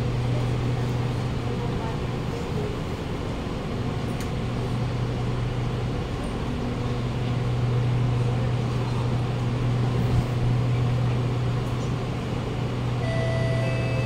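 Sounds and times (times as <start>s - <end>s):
train low hum: 0.0s - 14.0s
door-closing warning chime: 13.0s - 14.0s.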